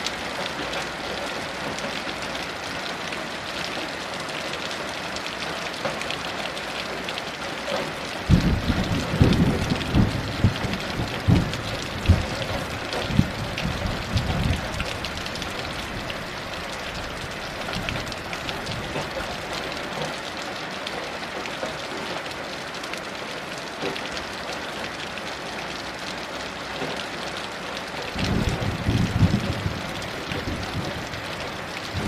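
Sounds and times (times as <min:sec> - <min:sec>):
heavy rain falling: 0:00.0 - 0:32.0
distant thunder rumble: 0:08.3 - 0:15.8, 0:28.2 - 0:32.0.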